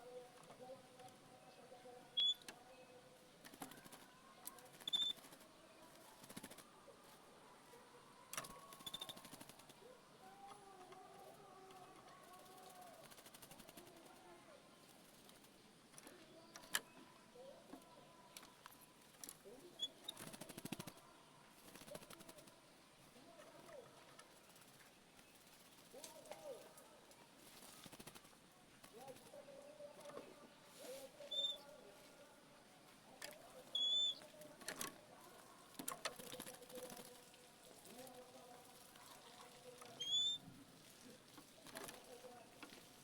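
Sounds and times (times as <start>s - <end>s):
bird singing softly: 0.0s - 6.9s, 7.8s - 26.7s, 29.0s - 31.8s, 33.2s - 34.4s, 39.8s - 40.5s
bird whistle: 2.2s - 2.4s, 40.0s - 40.4s.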